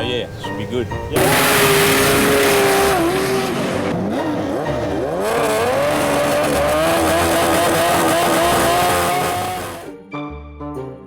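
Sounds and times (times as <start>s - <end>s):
music: 0.0s - 11.0s
racing engine at full throttle: 1.2s - 9.9s.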